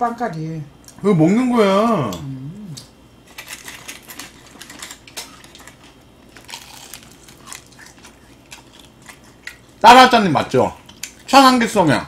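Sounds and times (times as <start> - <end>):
fried chicken crunching: 5.2 - 9.7.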